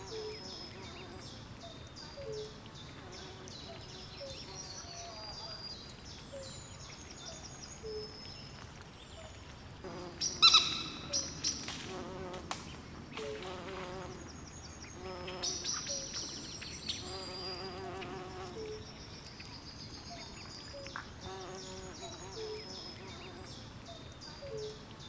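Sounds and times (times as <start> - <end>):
frogs insects and birds calling: 0.0 - 11.8.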